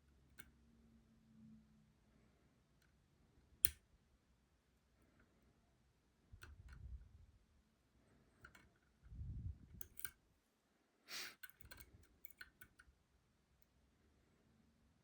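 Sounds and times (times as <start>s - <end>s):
lock pick clicking and scraping: 6.4s - 6.9s, 8.4s - 9.0s, 9.7s - 10.2s, 11.4s - 12.9s.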